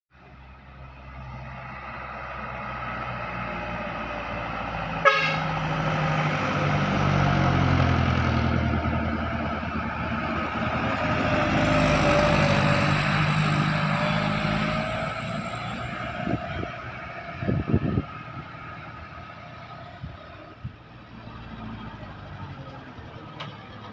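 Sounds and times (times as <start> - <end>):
heavy truck engine labouring: 0.2 - 23.9
vehicle horn tooting: 5.0 - 5.5.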